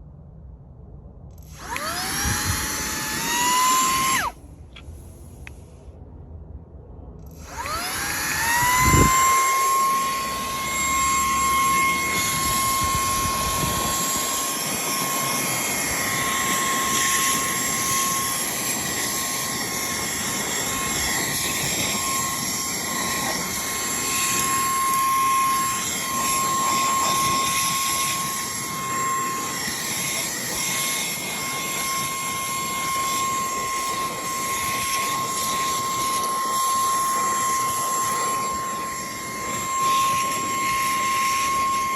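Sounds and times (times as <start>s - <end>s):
handheld vacuum cleaner whining: 1.5s - 4.4s, 7.4s - 41.9s.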